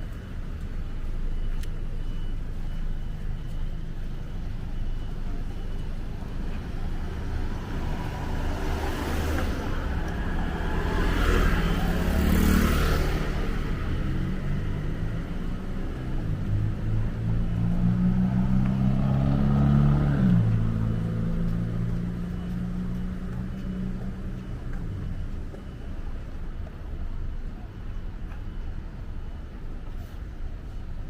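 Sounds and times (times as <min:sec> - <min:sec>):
road traffic: 0:00.0 - 0:31.0
vehicle passing close: 0:16.7 - 0:23.0.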